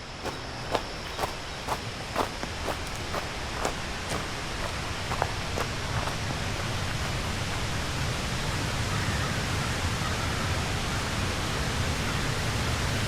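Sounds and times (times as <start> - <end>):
footsteps on gravel: 0.0 - 8.0
waterfall roar: 0.3 - 13.0.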